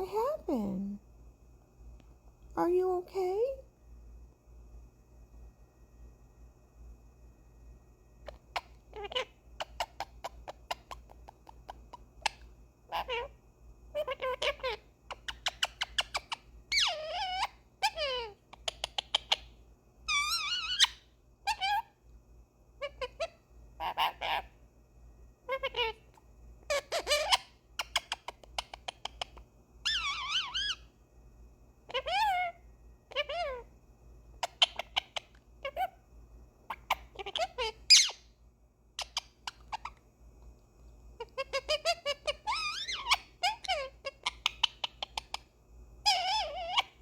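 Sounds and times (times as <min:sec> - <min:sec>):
parrot calling: 0:08.2 - 0:22.0, 0:22.8 - 0:24.6, 0:25.4 - 0:30.9, 0:31.9 - 0:33.7, 0:34.4 - 0:36.0, 0:36.6 - 0:38.4, 0:39.0 - 0:40.0, 0:41.2 - 0:47.0
parrot squeaks and chirps: 0:08.2 - 0:22.0, 0:22.8 - 0:24.6, 0:25.5 - 0:30.9, 0:31.9 - 0:33.7, 0:34.4 - 0:36.0, 0:36.7 - 0:38.4, 0:39.0 - 0:40.0, 0:41.2 - 0:47.0.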